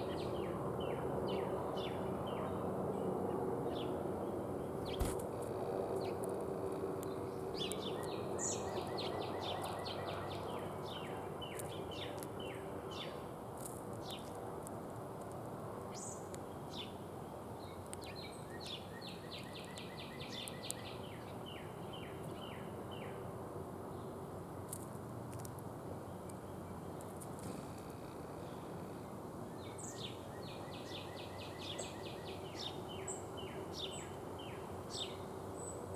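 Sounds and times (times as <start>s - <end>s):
songbird singing: 0.0s - 5.2s, 7.0s - 13.3s, 17.6s - 23.3s, 26.0s - 35.9s.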